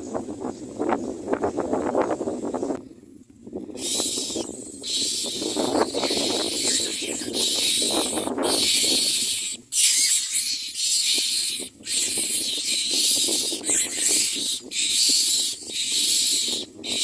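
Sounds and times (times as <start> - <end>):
nestlings hissing begging calls: 3.8 - 17.0.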